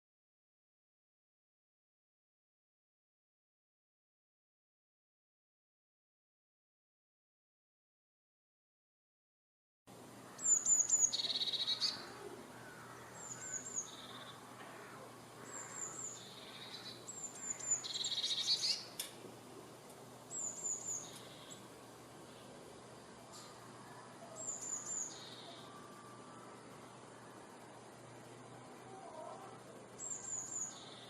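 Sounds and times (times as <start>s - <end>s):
faint outdoor background: 9.9s - 31.0s
bird singing trills: 10.2s - 19.0s, 20.3s - 21.7s, 23.4s - 27.8s, 28.8s - 31.0s.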